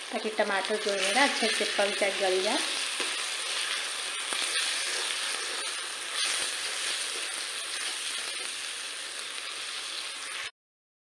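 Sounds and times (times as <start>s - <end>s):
food sizzling in hot oil: 0.0s - 10.5s
metal spatula scraping pan: 2.8s - 8.5s.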